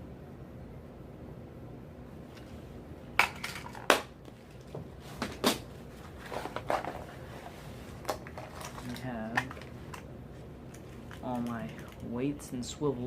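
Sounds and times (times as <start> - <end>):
small hooks rattling inside: 10.7 - 12.2.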